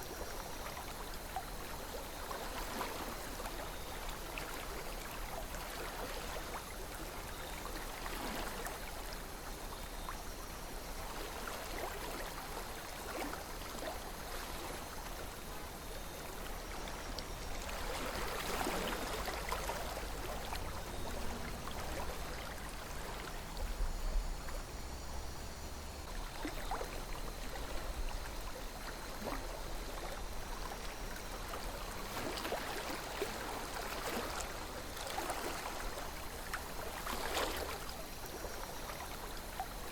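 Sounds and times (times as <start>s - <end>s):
river water rushing and gurgling: 24.8s - 39.9s.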